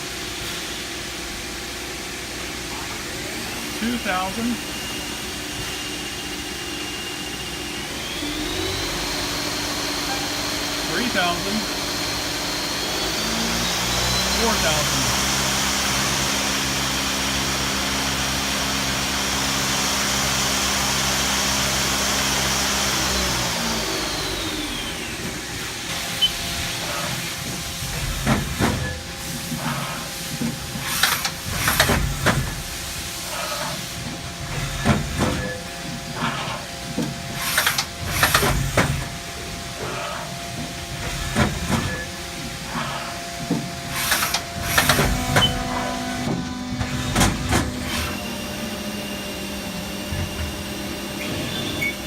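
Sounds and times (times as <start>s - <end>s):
lathe spindle humming and whining: 0.0s - 52.0s
machine hisses and clunks: 24.2s - 52.0s.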